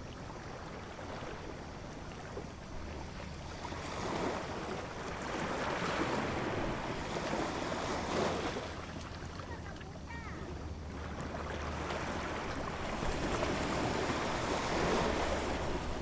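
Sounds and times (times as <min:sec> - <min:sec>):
ocean waves washing in: 0:11.1 - 0:16.0.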